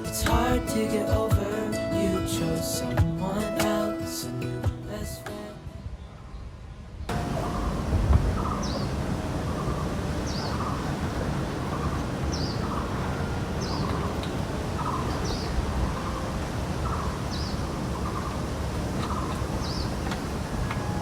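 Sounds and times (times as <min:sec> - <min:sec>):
outdoor background noise: 0:00.0 - 0:21.0
high falling bird chirp: 0:07.1 - 0:21.0.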